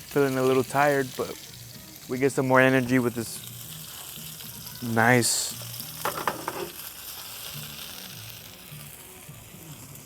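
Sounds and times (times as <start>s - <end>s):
burger patties sizzling: 0.0s - 10.0s.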